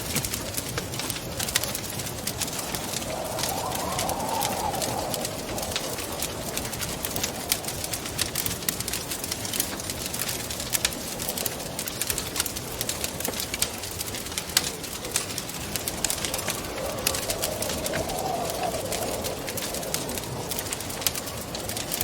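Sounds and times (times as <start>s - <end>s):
wood fire crackling: 0.0s - 22.0s
wind rushing: 1.5s - 10.1s, 14.8s - 22.0s.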